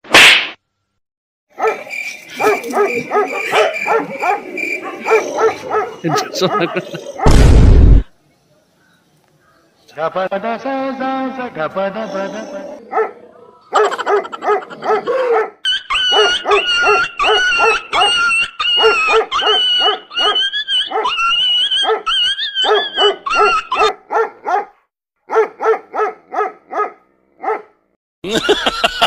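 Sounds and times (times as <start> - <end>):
dog barking: 1.5 - 7.3, 12.8 - 21.2, 21.8 - 27.8.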